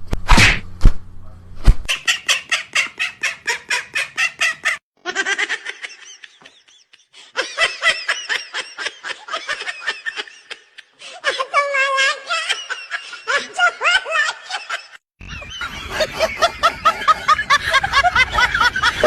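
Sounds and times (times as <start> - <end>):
birds calling: 15.2 - 19.0.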